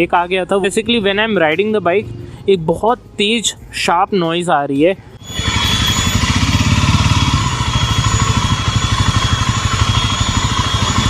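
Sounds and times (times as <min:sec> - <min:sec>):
high-pitched whine: 0:05.0 - 0:11.0
motorcycle engine running: 0:05.3 - 0:11.0.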